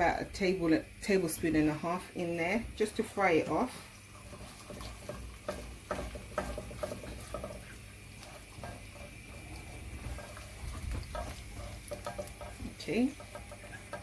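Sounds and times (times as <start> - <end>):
eggs sizzling in oil: 0.0 - 14.0
utensil scraping a pot: 2.8 - 14.0.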